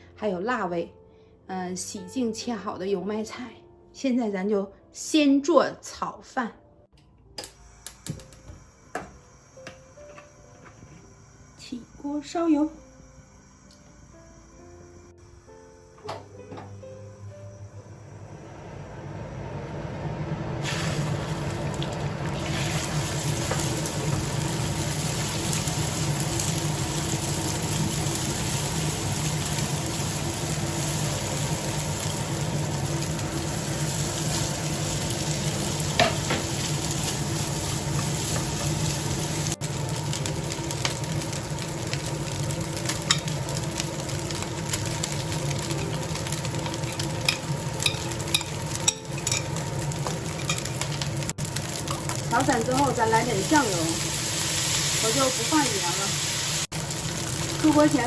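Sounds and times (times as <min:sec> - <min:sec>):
food sizzling in hot oil: 0:20.5 - 0:58.0.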